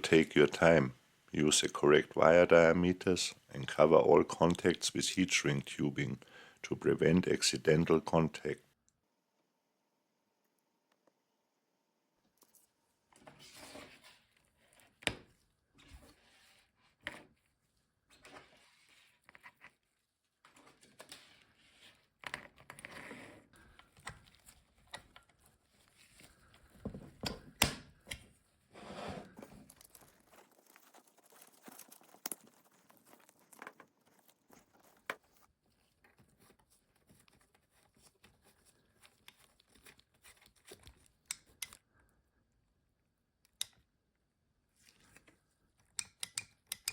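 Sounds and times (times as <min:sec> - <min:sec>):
rustling and scraping: 0:12.4 - 0:27.6, 0:28.2 - 0:41.6
clicks and taps on electronics: 0:45.9 - 0:46.9.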